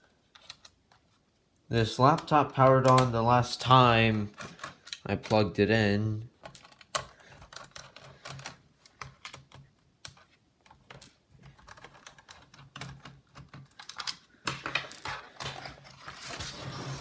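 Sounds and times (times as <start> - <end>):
hands tapping laptop parts: 6.3 - 15.9.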